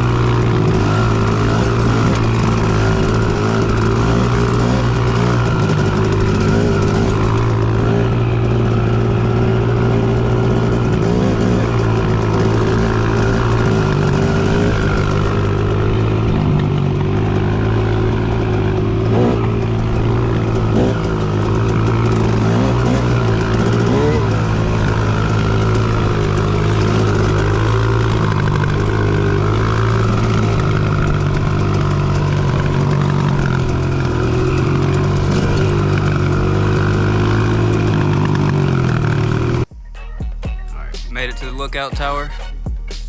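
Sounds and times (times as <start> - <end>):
dirt bike engine running: 0.0 - 43.0.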